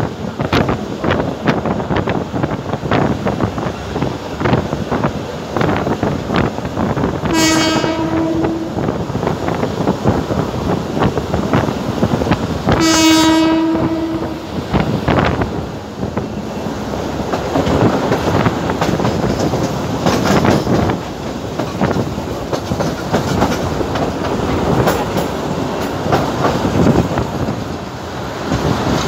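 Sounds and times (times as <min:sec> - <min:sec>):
train wheels rattling on track: 0:00.0 - 0:29.0
train horn blasts: 0:07.2 - 0:08.9, 0:12.7 - 0:14.5.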